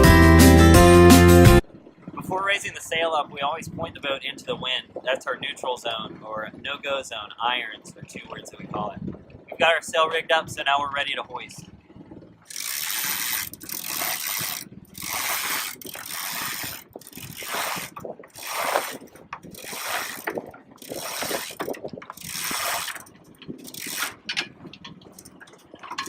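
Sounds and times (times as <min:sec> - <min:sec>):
rope running through a block: 0:12.5 - 0:24.3.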